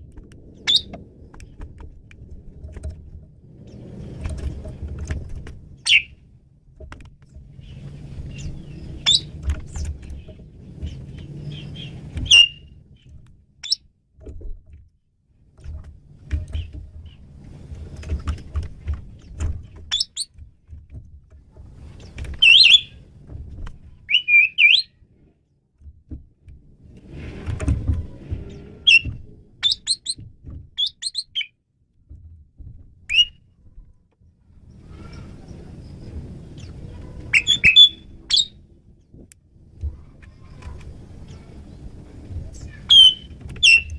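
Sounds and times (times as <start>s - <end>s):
low rumbling noise: 0.0s - 13.6s, 24.9s - 30.8s, 31.8s - 43.9s
starling whistles and chirps: 0.6s - 0.9s, 5.8s - 6.1s, 7.6s - 9.4s, 10.9s - 12.8s, 19.9s - 20.3s, 22.4s - 23.0s, 24.1s - 24.9s, 28.9s - 30.2s, 30.8s - 31.5s, 33.1s - 33.4s, 37.3s - 38.6s, 42.8s - 43.9s.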